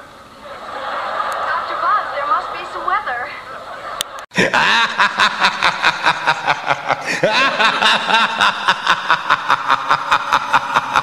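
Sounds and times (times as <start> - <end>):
snickering laughter: 3.7 - 11.0.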